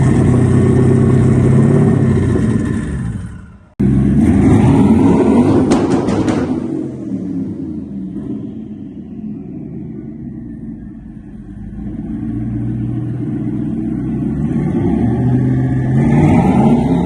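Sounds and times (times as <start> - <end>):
car engine rumbling and revving: 0.0 - 17.0.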